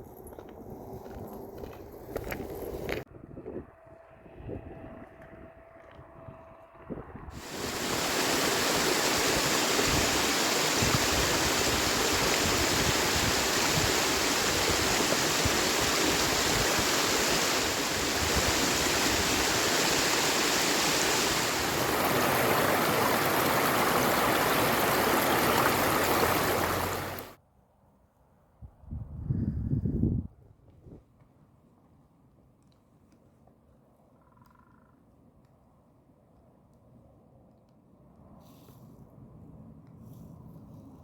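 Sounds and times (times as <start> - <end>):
stream water flowing: 7.4 - 27.4.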